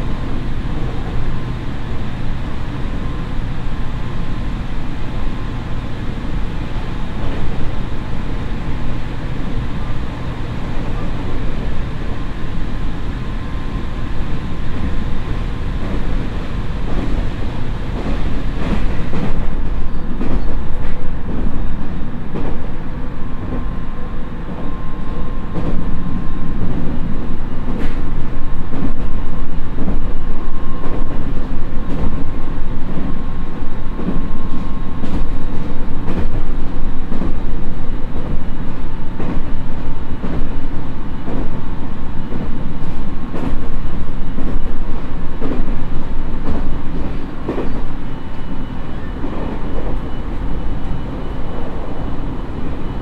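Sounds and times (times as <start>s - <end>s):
faint steady whine: 0.0s - 53.0s
wheels rumbling on rail: 0.0s - 53.0s
clacks over rail joints: 20.2s - 21.6s, 46.4s - 47.9s.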